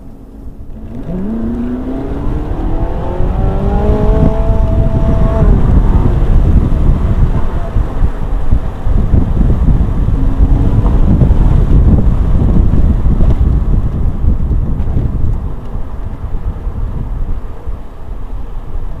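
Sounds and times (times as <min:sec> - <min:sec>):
wind and road noise: 0:00.0 - 0:19.0
sports car engine accelerating: 0:00.6 - 0:16.9.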